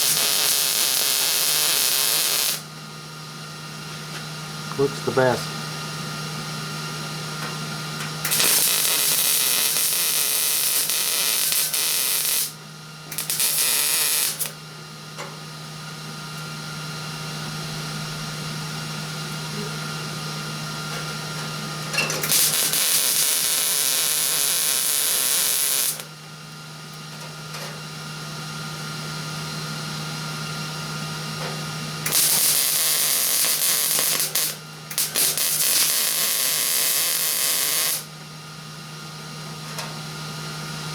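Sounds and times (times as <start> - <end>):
welding arc crackling: 0.0 - 2.7, 8.3 - 14.6, 22.2 - 26.1, 32.0 - 38.1.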